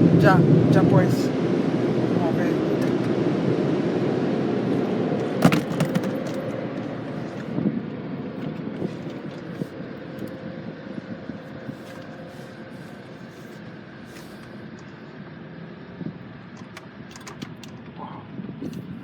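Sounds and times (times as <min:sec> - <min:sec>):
car wash rushing noise: 0:00.0 - 0:14.9.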